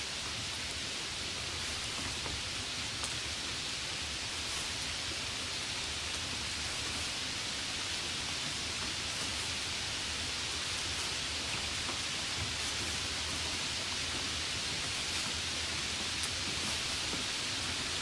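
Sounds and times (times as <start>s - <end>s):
steady treble hiss: 0.0s - 18.0s.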